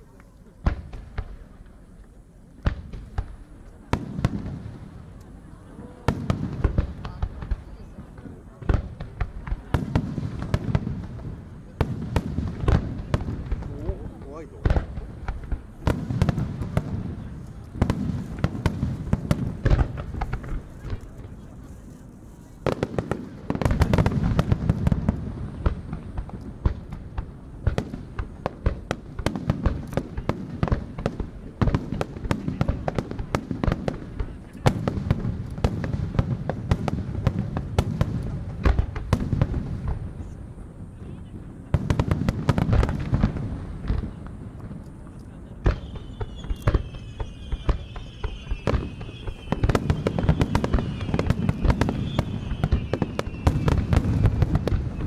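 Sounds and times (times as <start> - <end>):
fireworks booming and crackling: 0.0 - 55.0
high falling whistles: 45.8 - 54.3.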